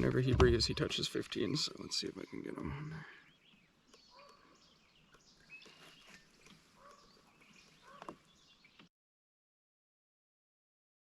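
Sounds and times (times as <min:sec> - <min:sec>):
faint bird chirps: 0:01.7 - 0:08.9.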